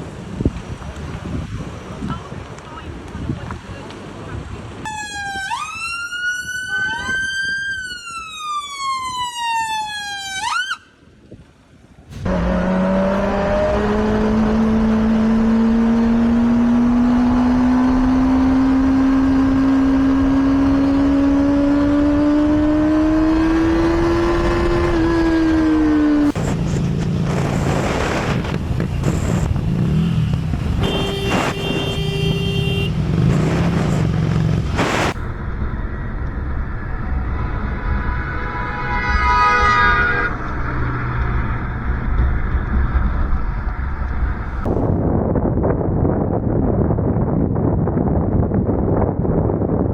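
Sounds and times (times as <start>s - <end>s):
police siren wailing: 4.9s - 10.9s
motorcycle engine climbing pitch: 12.1s - 49.9s
rough noise: 21.2s - 45.0s.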